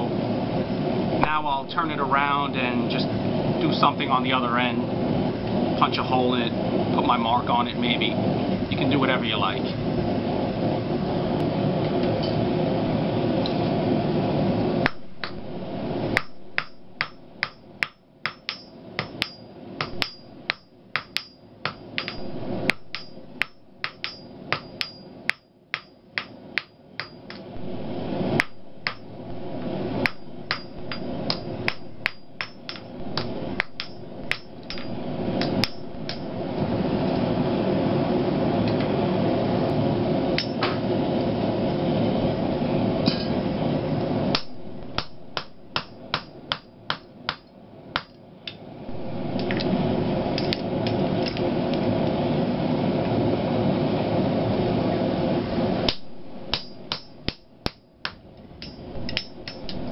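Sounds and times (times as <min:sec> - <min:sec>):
steady rushing noise: 0:00.0 - 0:47.0, 0:48.6 - 0:57.7, 0:58.5 - 0:59.9
hammer striking steel on anvil: 0:16.1 - 0:27.5, 0:28.4 - 0:29.2, 0:29.9 - 0:36.3, 0:40.4 - 0:40.8, 0:44.3 - 0:48.2, 0:50.4 - 0:51.4, 0:55.9 - 0:59.8.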